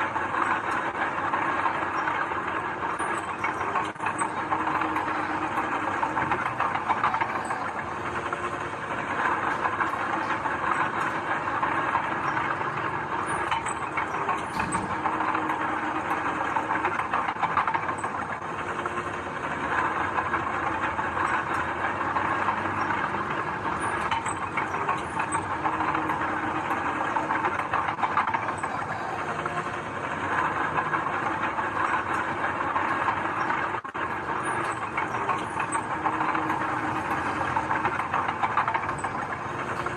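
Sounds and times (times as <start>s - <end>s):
light clatter: 0.0s - 39.9s.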